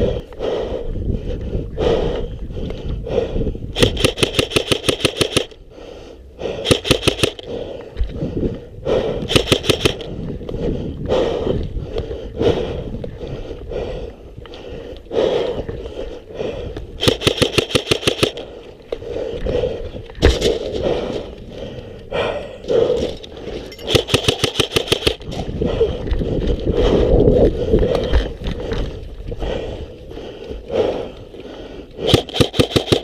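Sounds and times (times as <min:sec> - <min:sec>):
airsoft rifle full-auto bursts: 0:03.8 - 0:05.6, 0:06.6 - 0:07.4, 0:09.3 - 0:10.1, 0:17.0 - 0:18.4, 0:23.9 - 0:25.2, 0:32.0 - 0:33.0.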